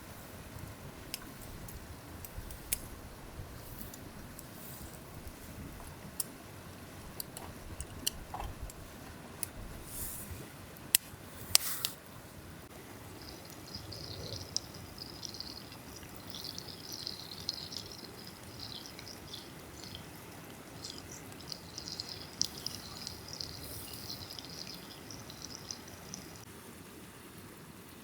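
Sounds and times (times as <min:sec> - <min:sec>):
low background rustle: 0:00.0 - 0:26.5
small birds twittering: 0:13.1 - 0:26.5.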